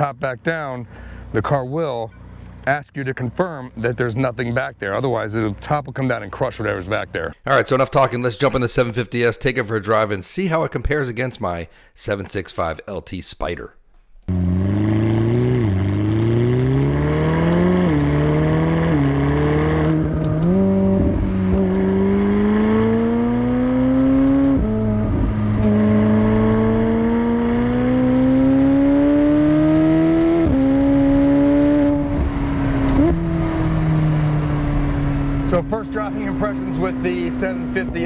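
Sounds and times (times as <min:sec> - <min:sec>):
car engine accelerating through gears: 0:14.3 - 0:38.0.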